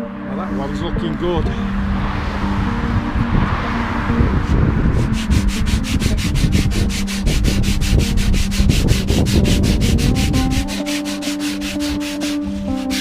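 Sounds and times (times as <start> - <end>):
sandpaper rubbing on wood: 5.0 - 13.0.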